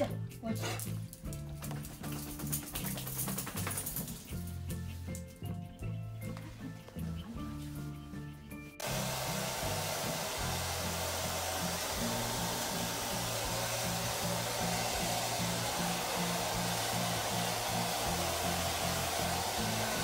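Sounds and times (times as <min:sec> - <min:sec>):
background music with bass line: 0:00.0 - 0:20.0
blow dryer running: 0:08.8 - 0:20.0.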